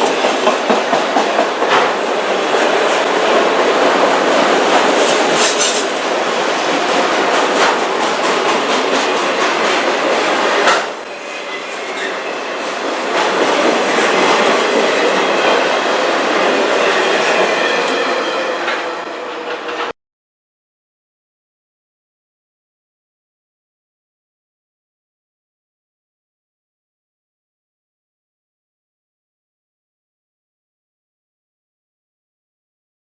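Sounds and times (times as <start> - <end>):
freight train rolling past: 0.0 - 20.0.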